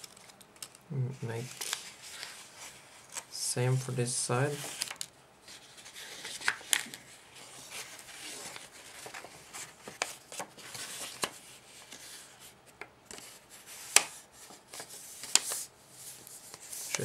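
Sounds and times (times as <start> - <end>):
crisp paper clicks: 0.0 - 0.8, 4.7 - 5.1, 6.2 - 7.0
paper rustling and rubbing: 0.0 - 17.0.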